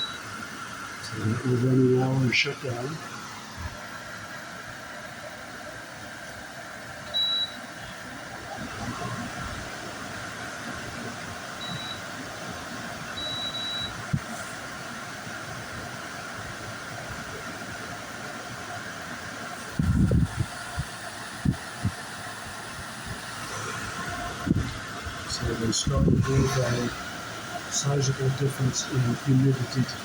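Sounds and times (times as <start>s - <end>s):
control panel beeps: 0.0s - 0.3s, 7.1s - 7.7s, 11.6s - 12.1s, 13.2s - 14.0s
dehumidifier fans humming: 0.0s - 30.0s.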